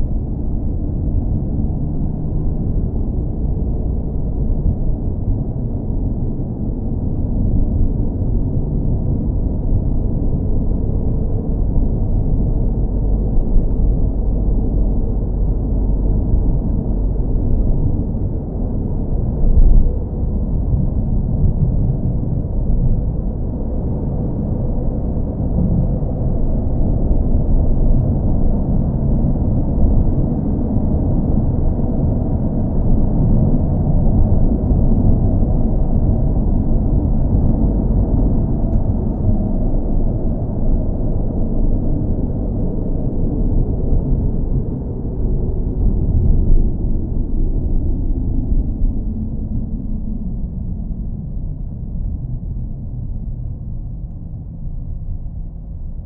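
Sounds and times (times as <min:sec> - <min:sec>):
car engine rumbling: 0:00.0 - 0:56.0.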